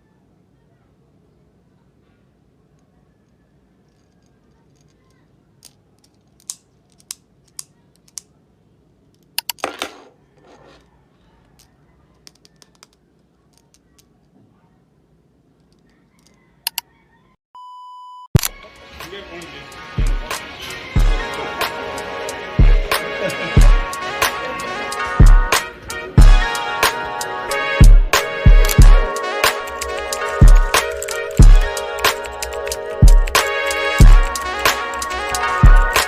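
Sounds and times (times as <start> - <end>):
objects clicking and tapping: 11.6 - 14.4.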